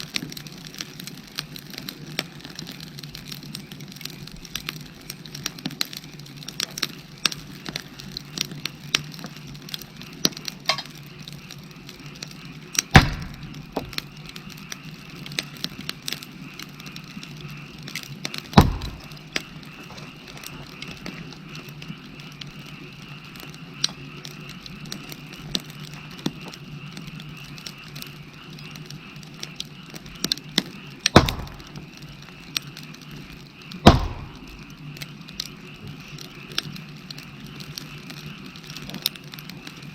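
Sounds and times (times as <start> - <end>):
wood fire crackling: 0.0 - 39.9
frogs calling: 10.0 - 15.2, 16.4 - 38.9
loud snapping pops: 12.8 - 14.0, 18.5 - 19.5, 31.0 - 31.9, 33.8 - 34.7.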